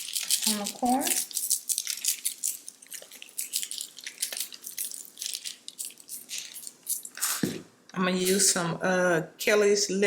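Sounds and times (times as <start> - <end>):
seasoning shaken from shaker bottle: 0.0 - 7.4.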